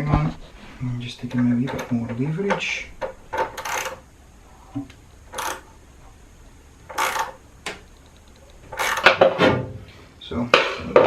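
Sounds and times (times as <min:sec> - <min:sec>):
spanner metallic clicks: 0:03.0 - 0:04.0, 0:05.3 - 0:05.7, 0:06.9 - 0:09.2.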